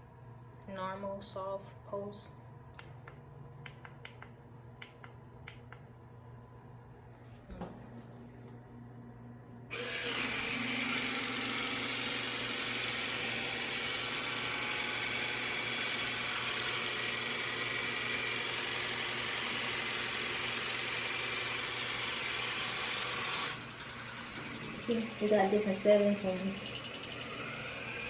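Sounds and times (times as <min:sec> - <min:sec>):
water flosser pump motor running: 0:09.7 - 0:28.0.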